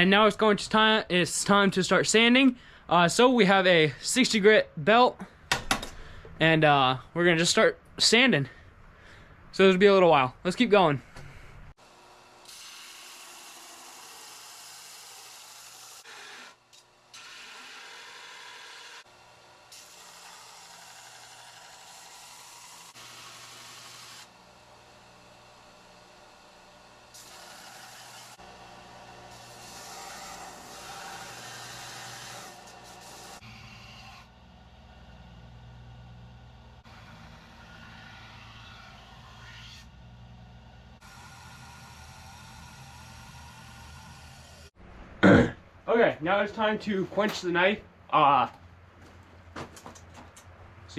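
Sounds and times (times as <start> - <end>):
motor hum: 23.0 - 44.7
belt grinder sanding steel: 25.8 - 34.4, 36.8 - 44.8.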